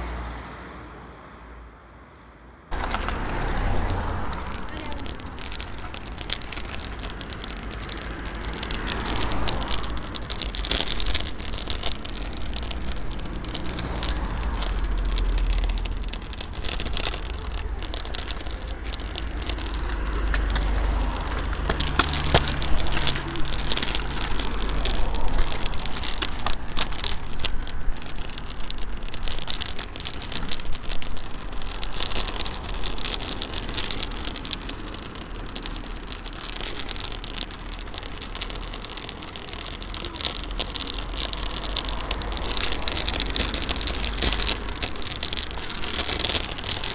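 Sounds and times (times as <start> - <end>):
scooter wheels rattling on asphalt: 2.7 - 46.9.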